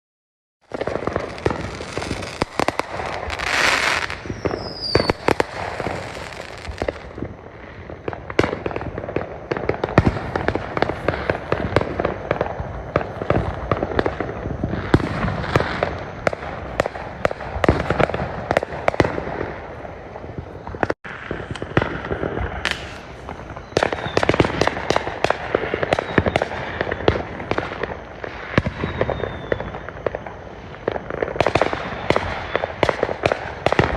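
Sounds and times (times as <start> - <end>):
falling firework whistle: 0.6 - 33.9
fireworks bangs and crackles: 0.6 - 33.9.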